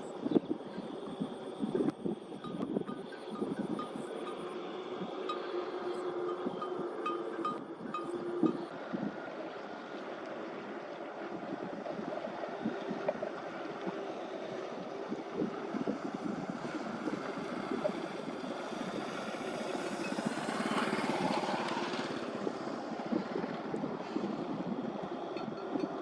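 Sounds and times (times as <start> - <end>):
small engine pulsing: 16.2 - 23.6.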